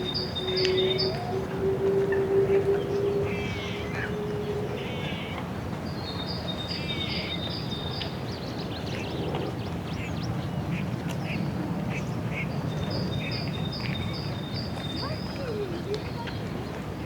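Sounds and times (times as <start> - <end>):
distant city hum: 0.0 - 6.0.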